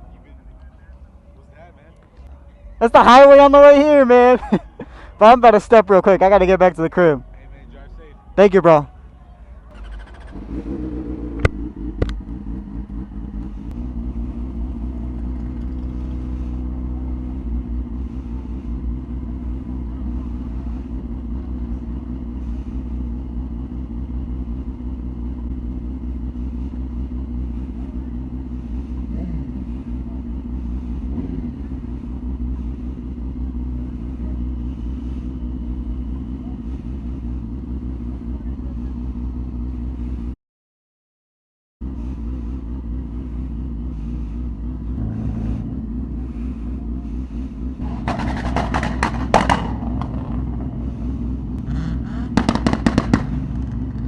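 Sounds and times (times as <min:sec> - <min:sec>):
motorcycle engine running: 0:09.5 - 0:40.4, 0:41.8 - 0:54.0.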